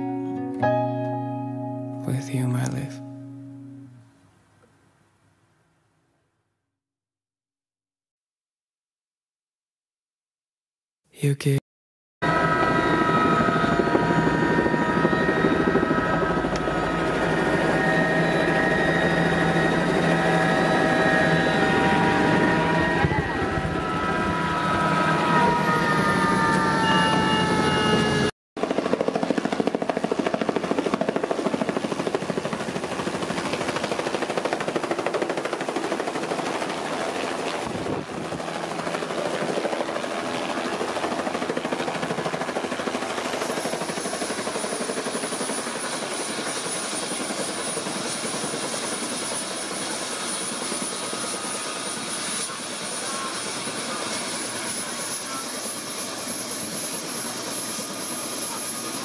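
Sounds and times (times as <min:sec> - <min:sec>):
helicopter rotor and engine: 0:12.2 - 0:59.0.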